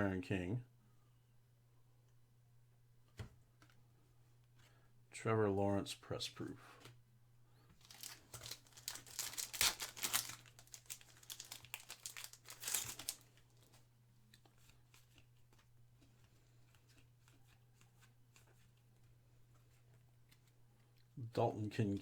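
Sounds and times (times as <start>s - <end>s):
foil wrapper tearing and crinkling: 7.8s - 13.8s.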